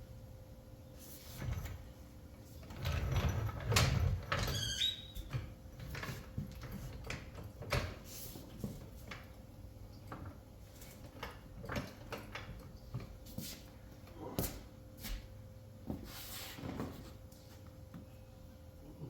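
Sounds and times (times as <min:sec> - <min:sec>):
short high squeak: 0:04.5 - 0:05.3.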